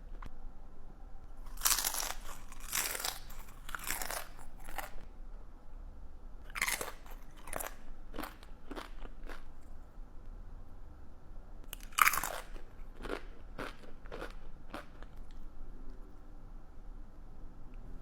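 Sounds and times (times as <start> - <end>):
person chewing crunchy food: 1.4 - 5.1, 6.5 - 9.6, 11.7 - 15.4.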